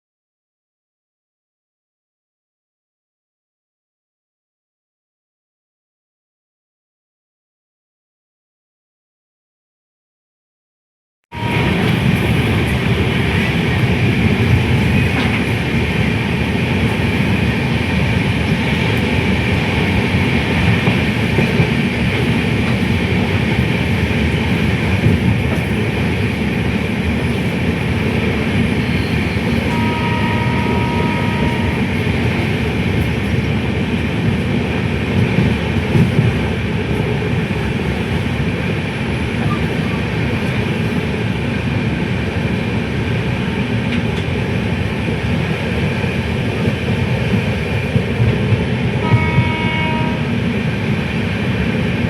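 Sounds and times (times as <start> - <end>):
moving train rumbling: 11.3 - 52.0.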